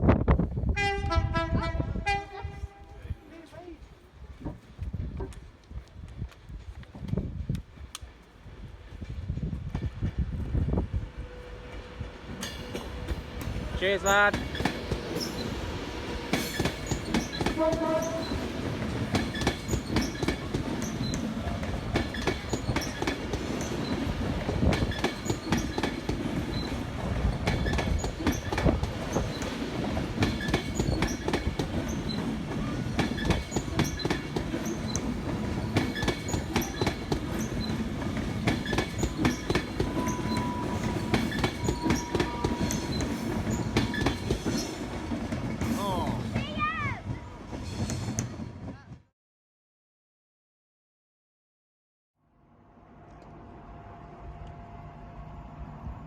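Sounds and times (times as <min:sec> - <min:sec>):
train wheels clattering over joints: 0:12.3 - 0:48.7.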